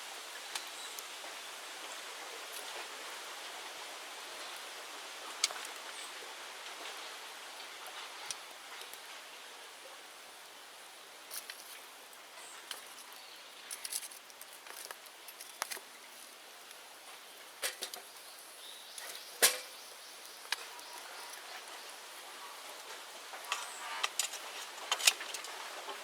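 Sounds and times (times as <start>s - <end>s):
bonfire crackling and popping: 12.6s - 18.2s.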